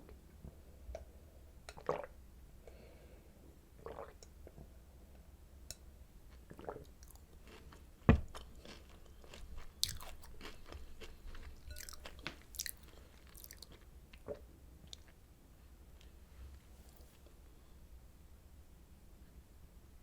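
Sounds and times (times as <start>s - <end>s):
chewing and crunching cereal: 6.3s - 13.9s.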